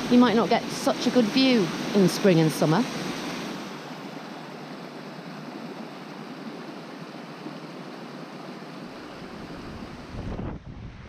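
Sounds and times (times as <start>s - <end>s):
waterfall rushing: 0.0s - 4.6s
wind rumbling on microphone: 8.9s - 11.0s.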